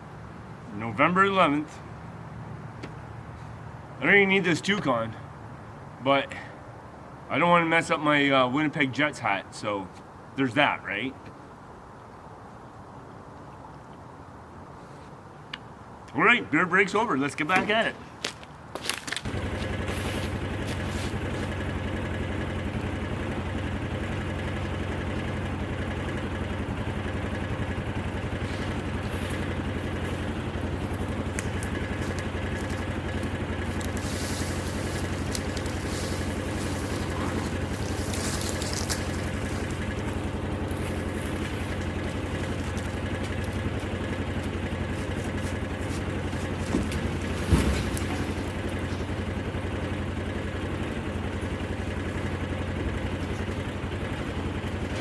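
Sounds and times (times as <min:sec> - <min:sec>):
engine running steadily: 0:19.2 - 0:55.0.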